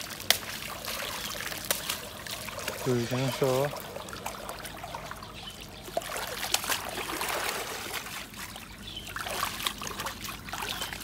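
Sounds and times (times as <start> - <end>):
shallow water splashing and trickling: 0.0 - 11.0.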